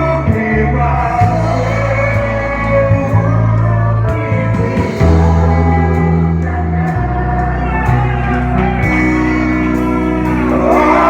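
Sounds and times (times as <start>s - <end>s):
worship band playing: 0.0s - 11.0s.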